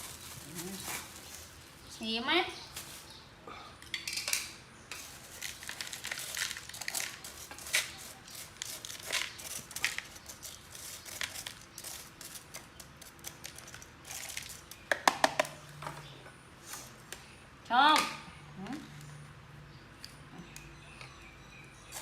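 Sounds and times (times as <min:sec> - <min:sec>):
crinkling and rustling: 0:00.0 - 0:01.9, 0:04.9 - 0:14.8.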